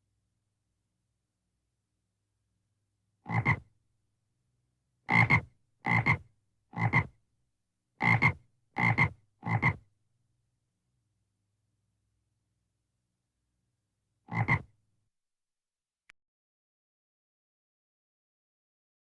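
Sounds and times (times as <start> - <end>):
frog croaking: 3.3 - 3.6, 5.1 - 6.2, 6.8 - 7.1, 8.0 - 9.8, 14.3 - 14.7.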